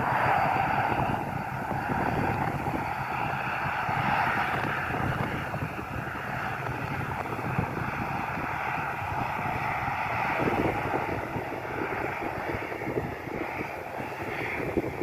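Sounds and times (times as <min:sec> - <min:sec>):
aircraft engine rushing: 0:00.0 - 0:15.0
wind buffeting microphone: 0:00.0 - 0:15.0.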